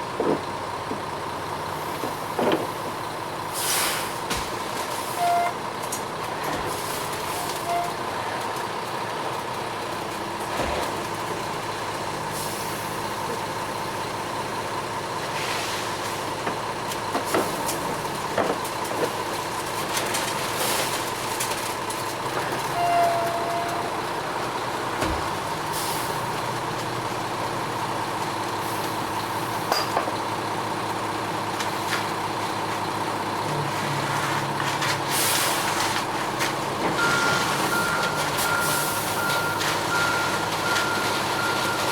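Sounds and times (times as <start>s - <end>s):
diesel truck engine running: 0.0s - 41.9s.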